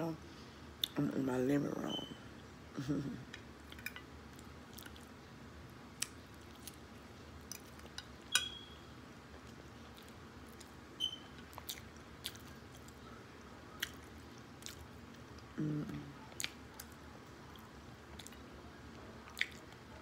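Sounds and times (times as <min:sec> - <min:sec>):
fork clinking on plate: 0:08.0 - 0:08.8
close chewing and biting: 0:11.5 - 0:13.0, 0:13.8 - 0:15.2, 0:19.2 - 0:20.0.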